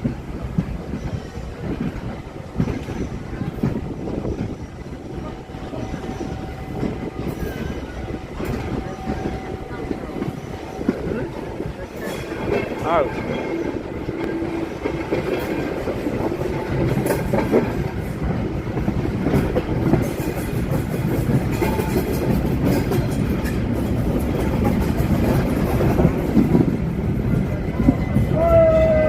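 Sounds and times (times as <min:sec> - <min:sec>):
train rumbling on track: 0:00.0 - 0:29.0
wheels clicking over rail joints: 0:11.8 - 0:29.0.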